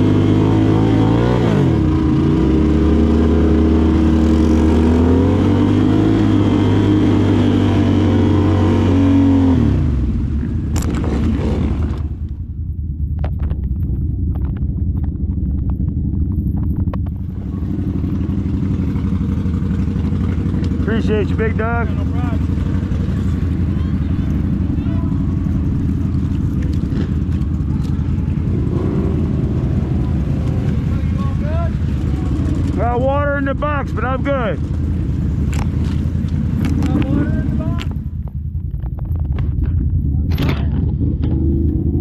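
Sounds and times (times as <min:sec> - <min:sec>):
atv engine revving and idling: 0:00.0 - 0:42.0
clicks and clatter: 0:13.1 - 0:17.3, 0:25.7 - 0:28.2, 0:35.4 - 0:41.8.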